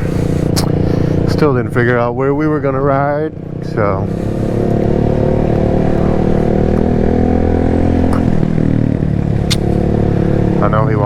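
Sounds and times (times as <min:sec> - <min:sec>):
motorcycle engine idling: 0:00.0 - 0:11.0
short clicks: 0:09.5 - 0:09.8.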